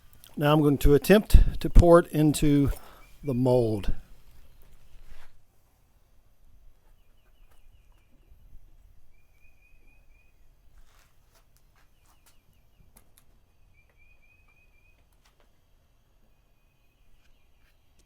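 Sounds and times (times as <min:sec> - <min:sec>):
faint bird chirps: 0:06.8 - 0:10.6, 0:11.8 - 0:15.4, 0:16.2 - 0:18.0.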